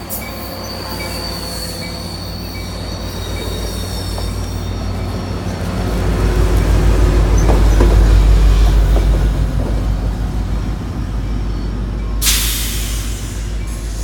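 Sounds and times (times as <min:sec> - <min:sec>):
train rumbling: 0:00.0 - 0:14.0
air brakes hissing: 0:12.2 - 0:14.0.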